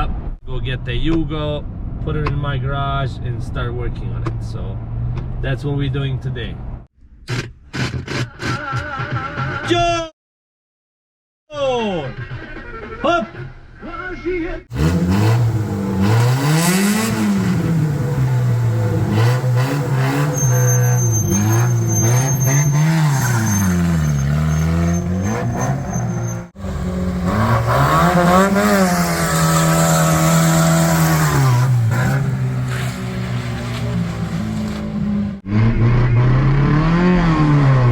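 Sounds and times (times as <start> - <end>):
car engine revving: 14.7 - 37.9.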